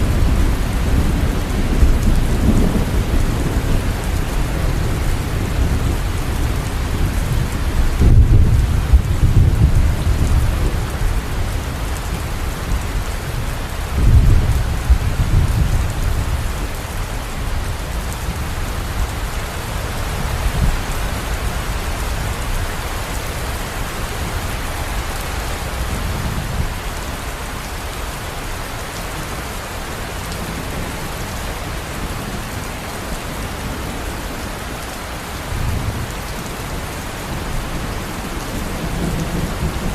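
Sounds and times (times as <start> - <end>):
thunder rumbling: 0.0 - 26.8
steady rain falling: 0.0 - 39.9.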